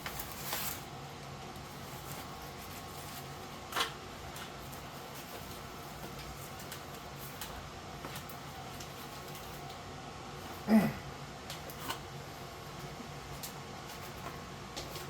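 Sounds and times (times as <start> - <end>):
insulation rustling: 0.0 - 10.7.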